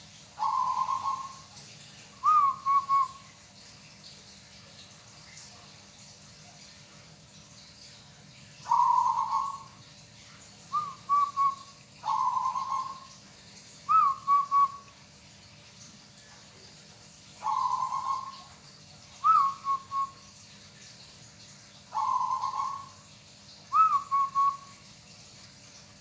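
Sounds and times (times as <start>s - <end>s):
dove cooing: 0.4s - 1.4s, 8.7s - 9.6s, 10.8s - 13.1s, 17.4s - 18.5s, 21.9s - 22.9s.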